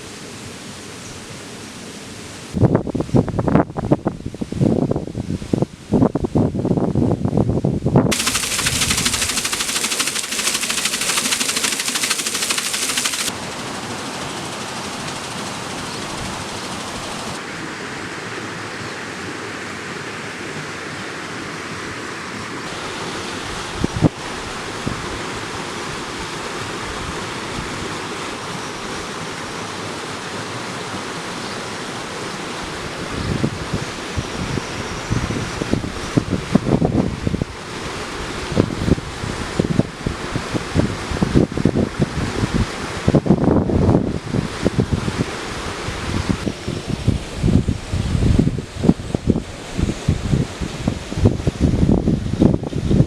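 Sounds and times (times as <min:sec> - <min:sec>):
steady rushing noise: 0:08.1 - 0:17.4.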